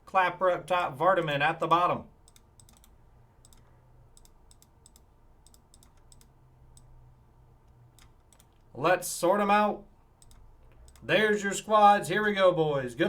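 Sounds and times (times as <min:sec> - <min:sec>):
computer keys clicking: 0:02.2 - 0:07.0, 0:07.6 - 0:08.7, 0:10.2 - 0:11.1.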